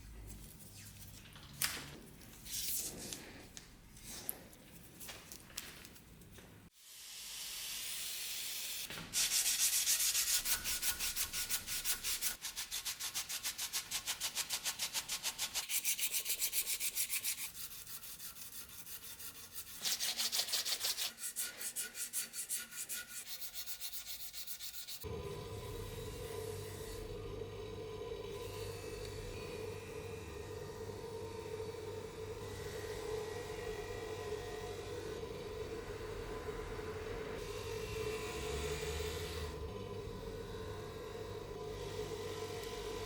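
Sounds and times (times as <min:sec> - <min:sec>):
sandpaper scraping steel blade: 0:09.2 - 0:25.1
steady hum: 0:25.1 - 0:43.0.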